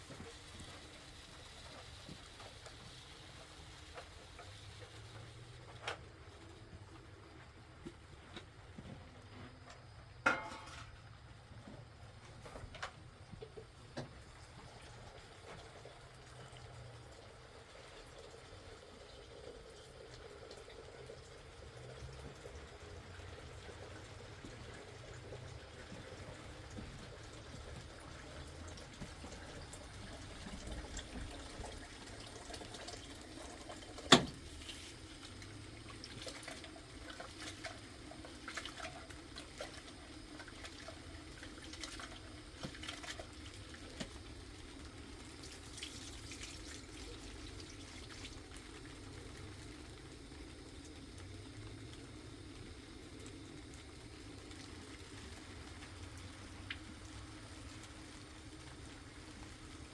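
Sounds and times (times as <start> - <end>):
light clatter: 9.4 - 11.2
water running and splashing: 13.5 - 59.9.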